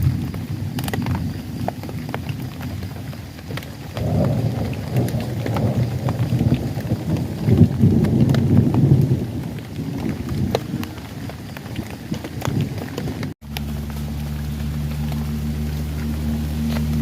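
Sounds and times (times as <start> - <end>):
rain with steady low rumble: 0.0 - 17.0
raindrops ticking close by: 0.0 - 17.0.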